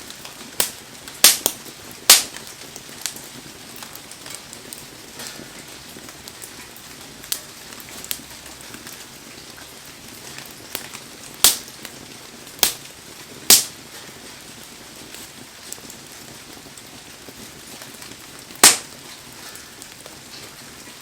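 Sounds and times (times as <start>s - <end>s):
wood fire crackling: 0.0s - 21.0s
loud sharp pops: 0.6s - 2.4s, 11.4s - 11.7s, 12.6s - 12.8s, 13.5s - 13.8s, 18.6s - 19.0s.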